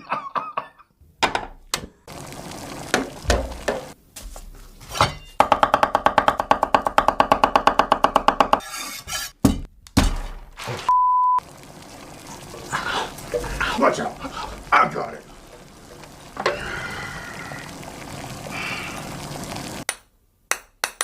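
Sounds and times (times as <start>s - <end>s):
censor bleep: 10.9s - 11.4s.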